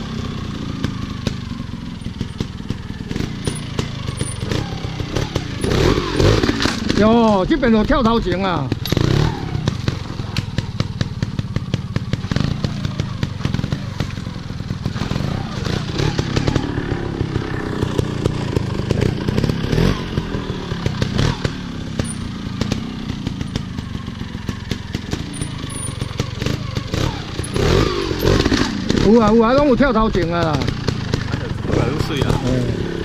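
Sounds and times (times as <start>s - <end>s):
motorcycle engines revving: 0.0s - 33.0s
sharp clicks and knocks: 3.4s - 4.6s.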